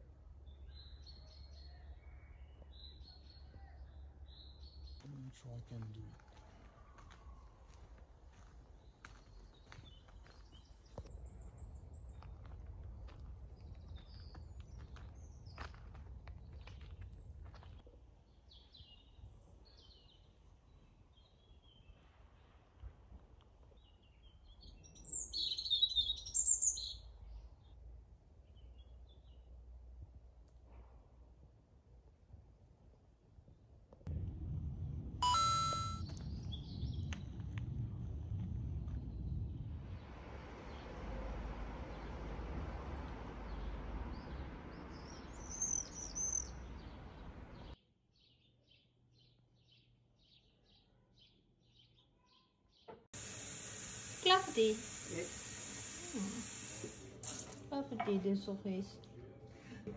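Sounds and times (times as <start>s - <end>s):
outdoor background noise: 0.0s - 59.9s
songbird chirping: 0.3s - 22.2s, 23.6s - 27.8s, 39.0s - 53.0s
small birds chirping: 23.7s - 27.8s, 43.4s - 53.0s
low steady rumble: 34.0s - 45.6s
repeated high chirps: 35.2s - 36.0s
steady hiss: 53.2s - 57.6s.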